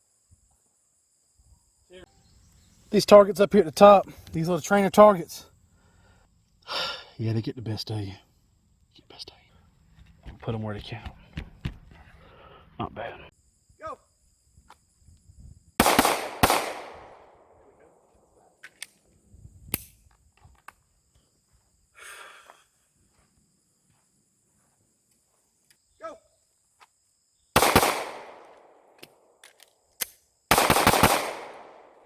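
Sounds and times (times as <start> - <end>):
person shouting a command: 13.8 - 14.0, 26.0 - 26.2
pistol shots: 15.8 - 17.5, 27.6 - 28.7, 30.5 - 32.0.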